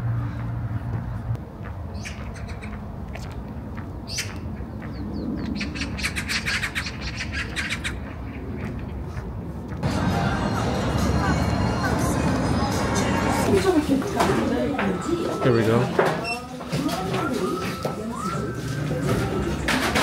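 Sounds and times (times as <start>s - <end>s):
birds calling: 1.9s - 9.0s.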